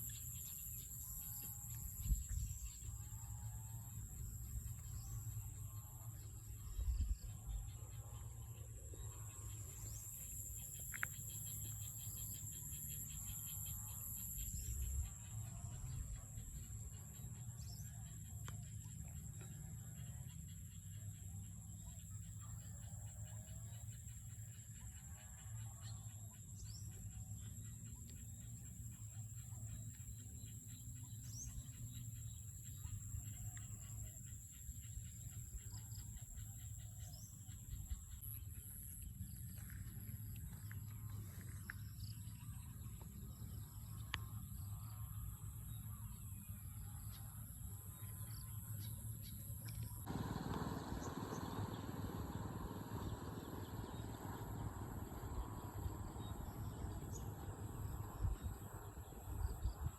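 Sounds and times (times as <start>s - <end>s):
insects droning: 0.0s - 59.9s
wind rumble on microphone: 1.5s - 5.9s, 6.6s - 7.9s, 50.1s - 59.9s.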